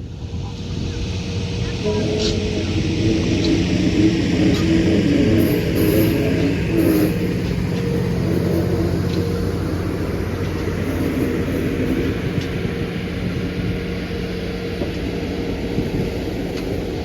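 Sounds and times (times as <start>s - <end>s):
locomotive engine drone: 0.0s - 17.0s.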